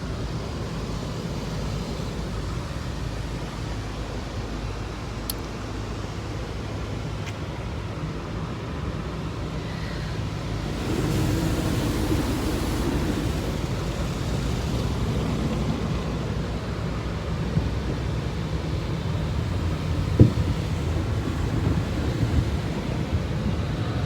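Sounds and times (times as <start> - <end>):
car wash low rumble: 0.0 - 24.0
spraying water hiss: 9.1 - 24.0.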